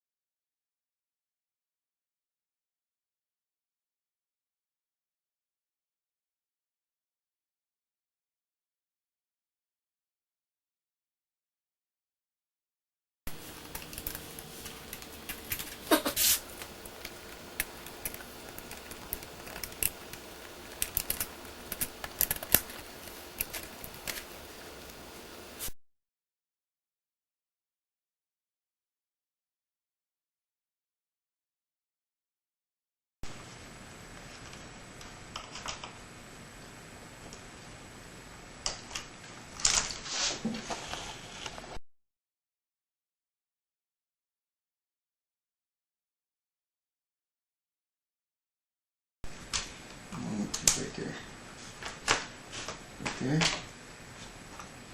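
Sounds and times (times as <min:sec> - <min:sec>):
small parts clicking and rattling: 0:13.4 - 0:25.0
plastic scrape: 0:39.9 - 0:41.8.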